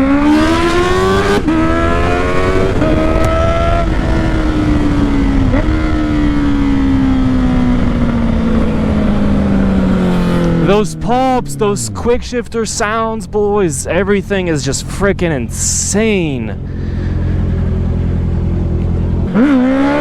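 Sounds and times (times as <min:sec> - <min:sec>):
motorcycle accelerating hard: 0:00.0 - 0:12.2, 0:16.6 - 0:20.0
gear upshift: 0:08.5 - 0:13.4.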